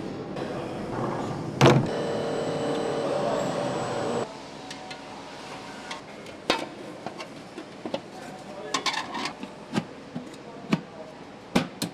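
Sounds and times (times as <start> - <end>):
machine humming and whining: 0.4 - 4.4.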